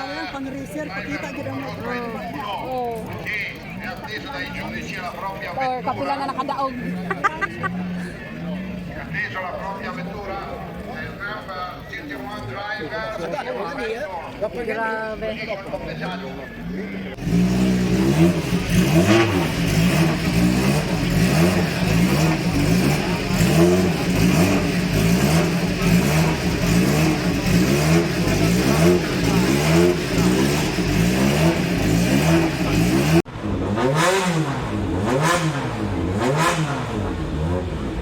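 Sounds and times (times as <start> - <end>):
racing car engine revving: 17.1 - 38.0.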